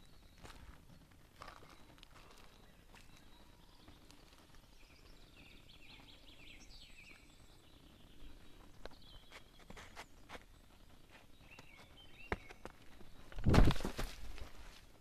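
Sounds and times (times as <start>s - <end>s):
songbird singing: 0.0s - 14.5s
footsteps on gravel: 0.3s - 4.6s.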